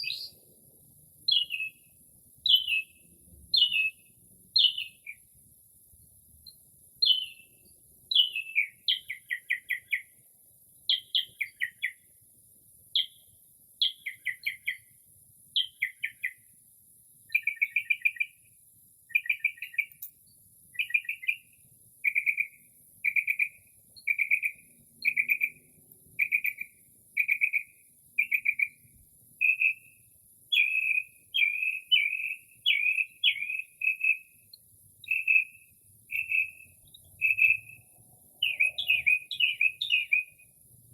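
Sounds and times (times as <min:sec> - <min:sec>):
mockingbird singing: 0:00.0 - 0:00.5, 0:01.3 - 0:05.3, 0:07.0 - 0:10.2, 0:10.9 - 0:12.1, 0:13.8 - 0:14.9, 0:15.6 - 0:16.4, 0:17.3 - 0:18.4, 0:19.1 - 0:20.1, 0:20.7 - 0:40.5.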